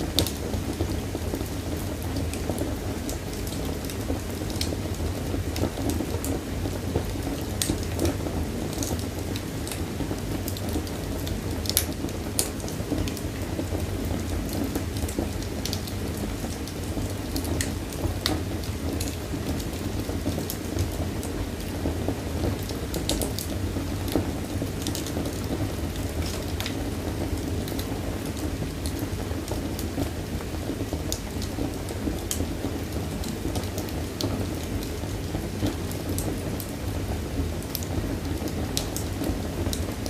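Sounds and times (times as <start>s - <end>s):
fireplace fire roaring and crackling: 0.0s - 40.0s.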